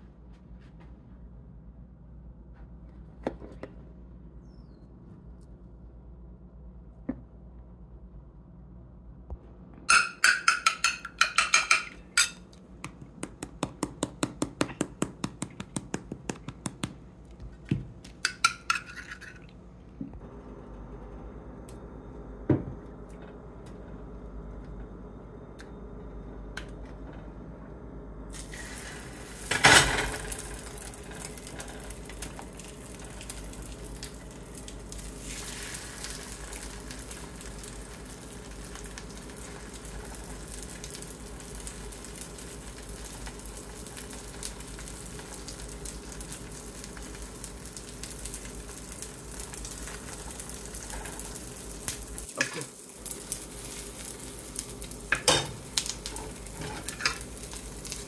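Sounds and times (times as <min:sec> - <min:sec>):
zucchini sizzling in a frying pan: 0:28.3 - 0:58.0.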